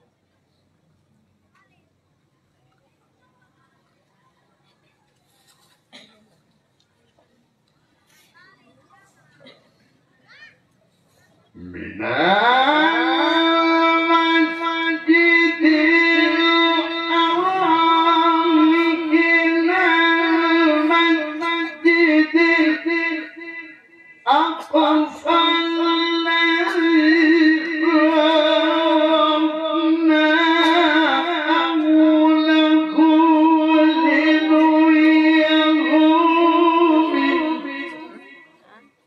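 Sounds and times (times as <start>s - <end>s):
person reciting in melismatic chant: 11.3s - 39.0s.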